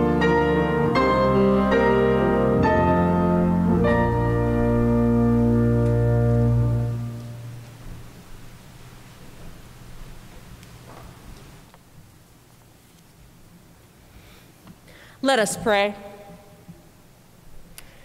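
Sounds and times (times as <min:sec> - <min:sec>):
organ chords: 0:00.0 - 0:08.4.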